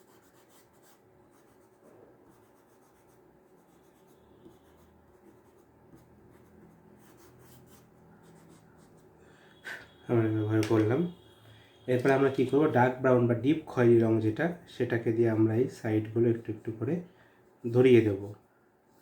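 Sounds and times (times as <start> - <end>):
colouring strokes on paper: 0.0 - 10.0.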